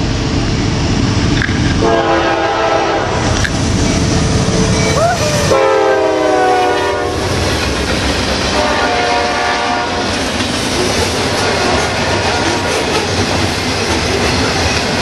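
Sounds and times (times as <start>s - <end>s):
freight cars rumbling and clattering: 0.0s - 1.8s, 7.0s - 15.0s
train horn blasts: 1.8s - 3.3s, 4.7s - 7.3s, 8.5s - 10.1s, 11.3s - 12.8s.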